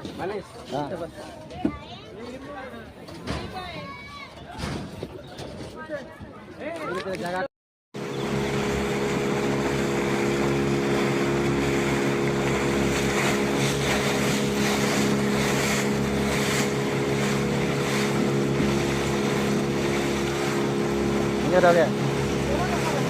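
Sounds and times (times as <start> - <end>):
motorboat engine running: 8.0 - 23.0.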